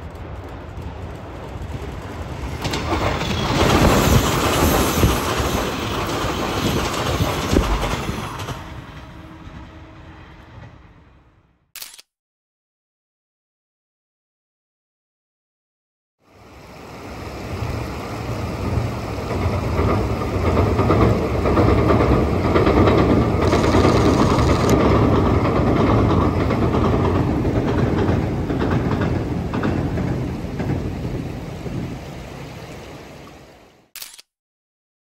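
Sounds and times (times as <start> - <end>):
train rumbling over steel bridge: 0.0 - 11.6, 16.3 - 33.6
rail-joint clatter: 0.1 - 9.8, 19.3 - 31.2.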